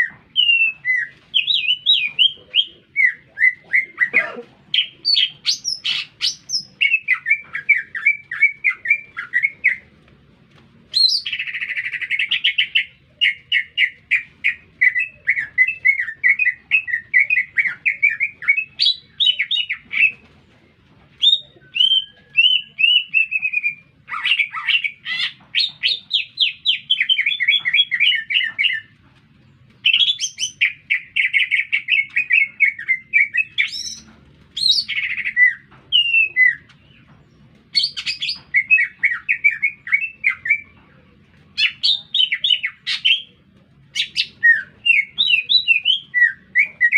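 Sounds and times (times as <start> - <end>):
bird singing chirps and whistles: 21.2 - 28.9, 37.8 - 40.7, 44.0 - 46.9.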